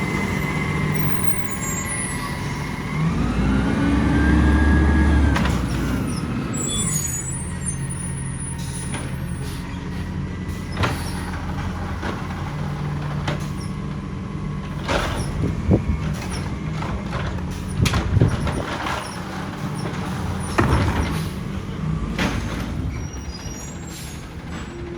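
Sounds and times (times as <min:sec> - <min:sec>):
metal knocks and clanks: 0:14.7 - 0:23.1.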